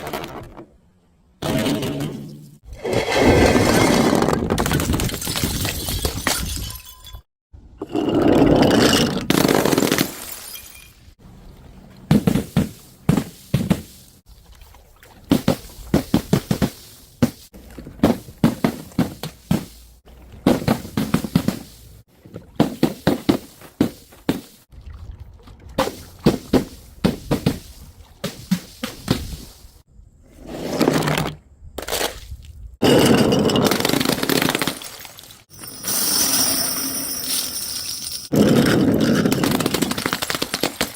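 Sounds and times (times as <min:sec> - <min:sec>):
glass breaking: 0:05.1 - 0:07.2, 0:09.5 - 0:11.0, 0:32.8 - 0:38.3.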